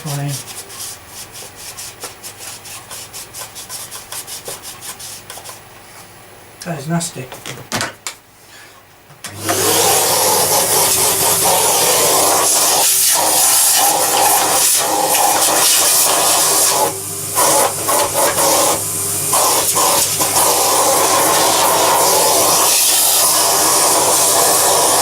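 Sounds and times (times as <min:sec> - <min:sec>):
low mains hum: 0:00.0 - 0:09.5, 0:16.7 - 0:21.4
electric motor blowing air: 0:09.3 - 0:25.0.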